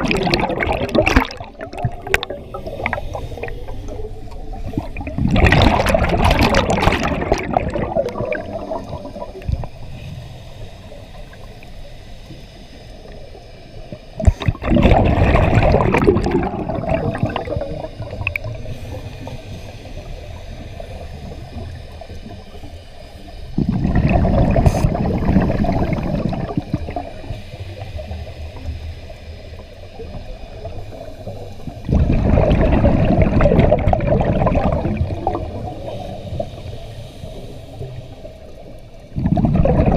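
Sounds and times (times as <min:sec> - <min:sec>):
scuba diver exhaling bubbles: 0:00.0 - 0:09.7, 0:14.2 - 0:19.3, 0:23.6 - 0:27.4, 0:31.2 - 0:36.5, 0:39.1 - 0:39.9.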